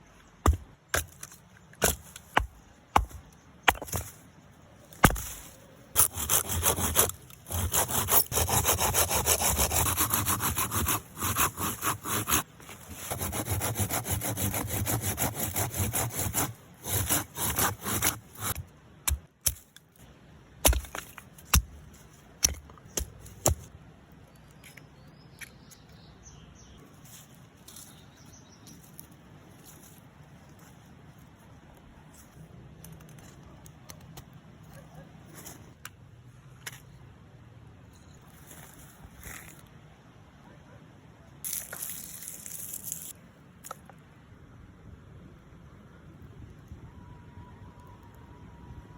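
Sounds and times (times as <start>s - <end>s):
hand saw cutting wood: 6.0s - 18.6s.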